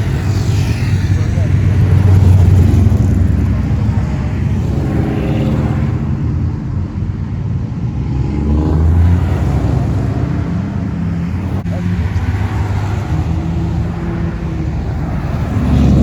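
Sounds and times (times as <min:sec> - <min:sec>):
car engines cruising past: 0:00.0 - 0:07.0, 0:07.8 - 0:16.0
car revving by: 0:08.0 - 0:16.0.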